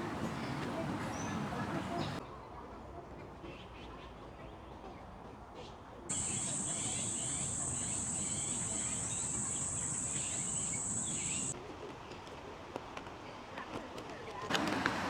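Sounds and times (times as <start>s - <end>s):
insect buzzing drone: 6.1s - 11.5s
small chirps: 6.1s - 11.5s.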